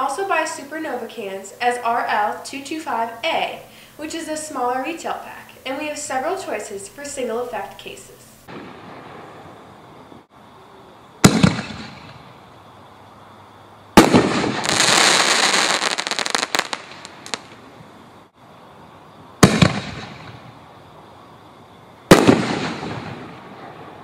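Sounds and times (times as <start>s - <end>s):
firework crackling: 11.2s - 12.2s, 14.0s - 17.7s, 19.4s - 20.4s, 22.1s - 24.0s
firework shells bursting with bangs: 11.2s - 12.2s, 14.0s - 17.6s, 19.4s - 20.4s, 22.1s - 23.7s.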